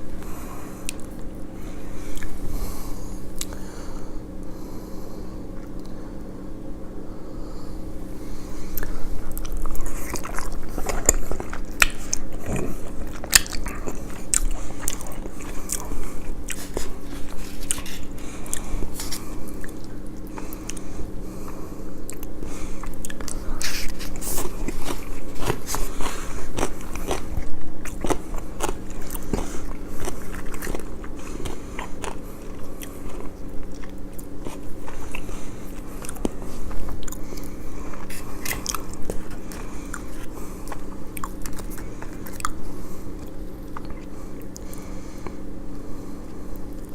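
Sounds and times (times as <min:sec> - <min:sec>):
faint low hum: 0:00.0 - 0:46.9
wet chewing: 0:00.2 - 0:03.7, 0:08.6 - 0:20.9, 0:21.5 - 0:46.9
crunching bites of fried chicken: 0:22.2 - 0:42.6.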